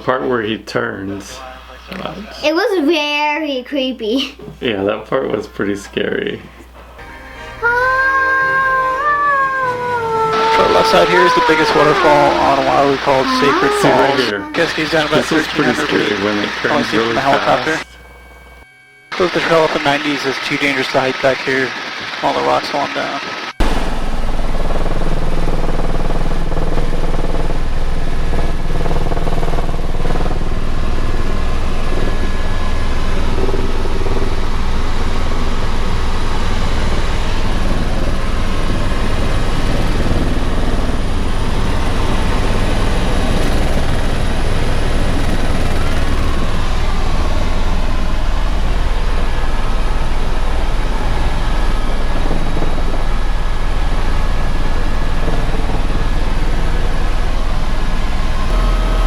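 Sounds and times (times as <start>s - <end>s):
faint high whine: 10.1s - 25.9s, 27.7s - 59.0s
helicopter engine and rotor: 10.4s - 17.9s, 19.1s - 58.8s.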